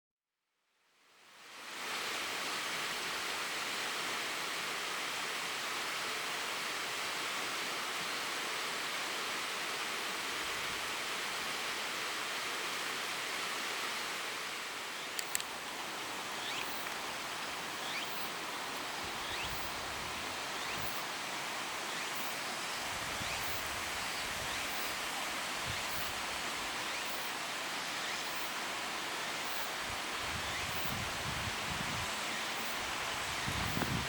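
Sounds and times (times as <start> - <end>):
even outdoor hiss: 0.7 - 34.0.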